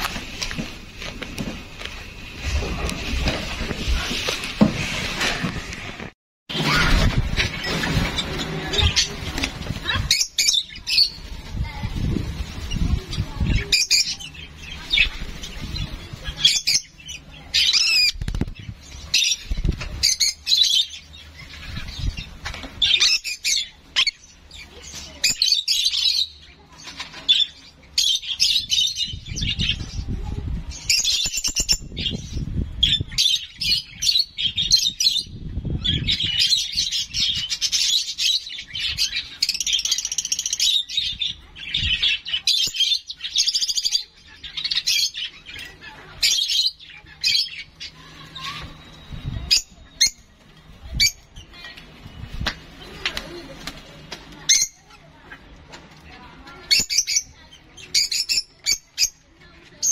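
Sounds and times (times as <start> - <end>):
wings fluttering: 0.0 - 14.1, 18.0 - 20.3
young bird chirping: 30.9 - 52.5.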